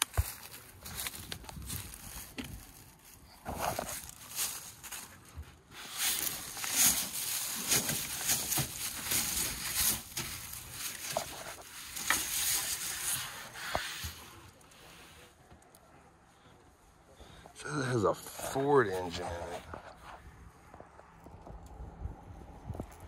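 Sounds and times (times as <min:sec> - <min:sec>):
footsteps crunching through dry grass: 0:00.0 - 0:14.7.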